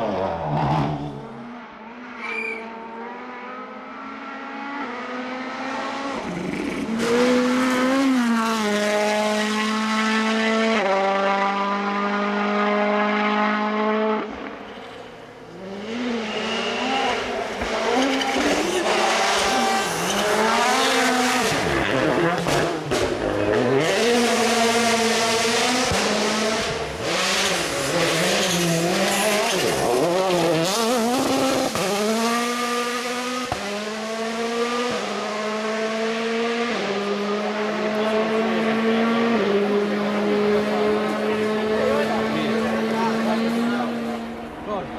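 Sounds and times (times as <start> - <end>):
rally car engines revving: 0.0 - 44.9.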